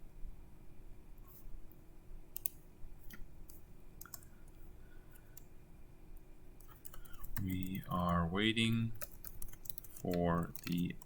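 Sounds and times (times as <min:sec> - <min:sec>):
faint steady hum: 0:00.0 - 0:11.0
keyboard clicks: 0:02.4 - 0:04.3, 0:06.6 - 0:11.0.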